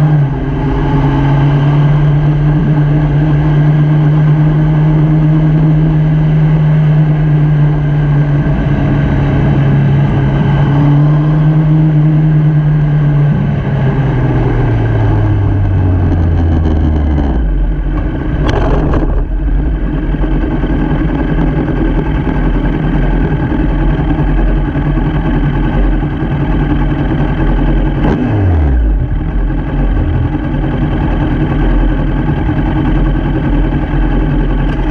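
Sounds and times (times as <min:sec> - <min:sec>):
motorcycle engine running: 0:00.0 - 0:34.9
steady rushing noise: 0:13.4 - 0:34.9.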